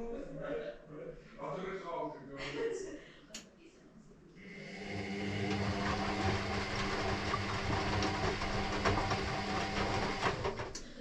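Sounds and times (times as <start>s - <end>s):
washing machine motor hum: 4.4s - 11.0s
drum clicks and rattles: 5.4s - 11.0s.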